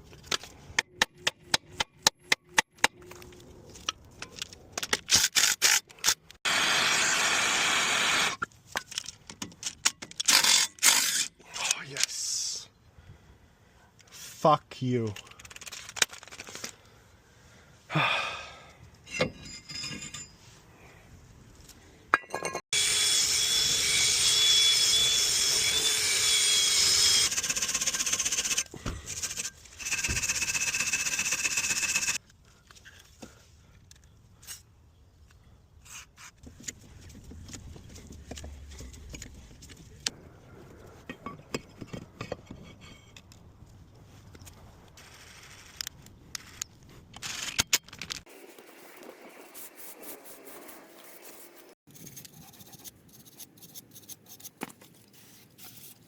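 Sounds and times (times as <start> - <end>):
power tool whining and rasping: 6.4 - 8.4, 22.7 - 32.2.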